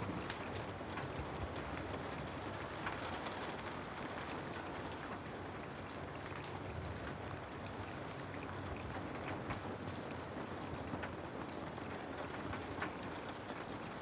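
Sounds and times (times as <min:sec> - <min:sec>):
raindrop ticks: 0:00.0 - 0:14.0
steady rain: 0:00.0 - 0:14.0.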